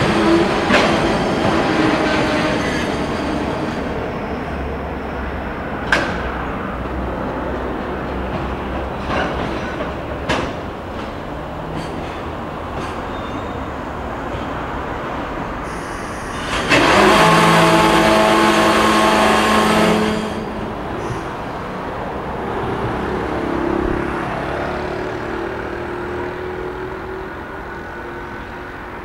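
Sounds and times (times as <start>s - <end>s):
freight wagons rumbling on rails: 0.0s - 29.0s
loud held horn tones: 15.7s - 21.2s.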